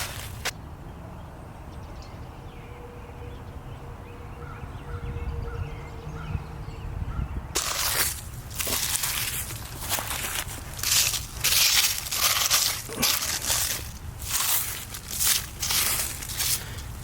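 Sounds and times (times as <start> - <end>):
footsteps crunching through leaves: 0.0 - 0.5, 7.6 - 17.0.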